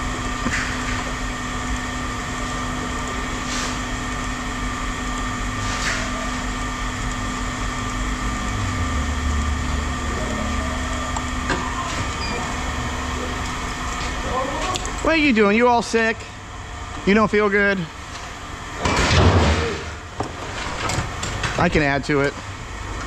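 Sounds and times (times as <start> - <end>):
machine humming: 0.0 - 23.0
deep rumble: 8.0 - 14.1.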